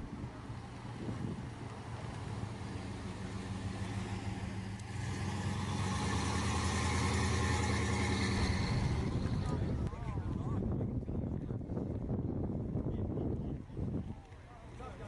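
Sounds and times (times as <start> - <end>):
car engine running: 1.8 - 9.8.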